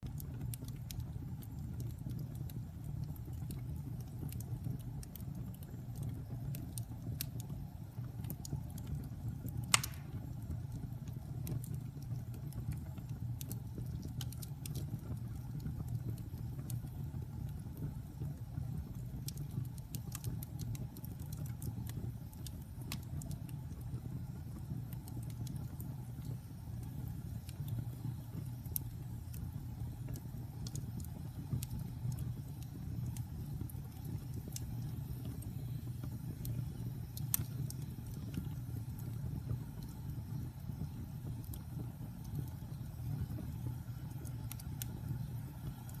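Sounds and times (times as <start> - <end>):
fire crackling: 0.0 - 46.0
fire rumbling in fireplace: 0.0 - 46.0
loud pop from fire: 9.6 - 10.4.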